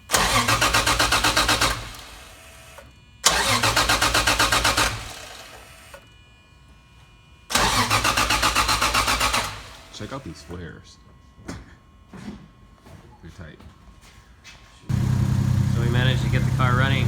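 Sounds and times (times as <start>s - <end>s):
starter cranking engine: 0.1s - 2.4s, 3.2s - 5.6s, 7.5s - 10.0s, 14.9s - 17.0s.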